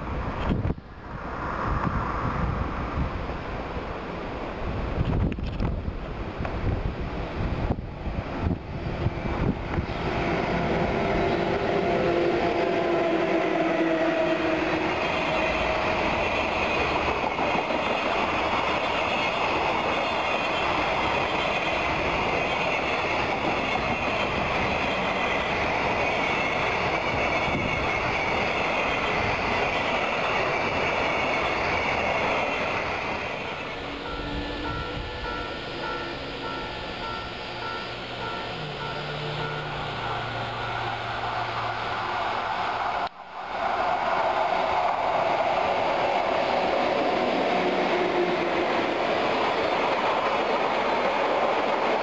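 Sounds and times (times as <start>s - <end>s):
freight wagons rumbling on rails: 0.0s - 52.0s
locomotive passing: 0.0s - 52.0s
faint high tones: 30.4s - 42.1s.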